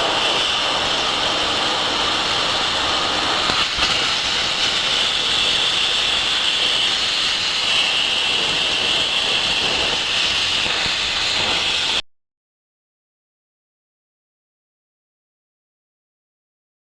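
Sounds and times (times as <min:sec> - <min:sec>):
plasma torch hissing: 0:00.0 - 0:12.0.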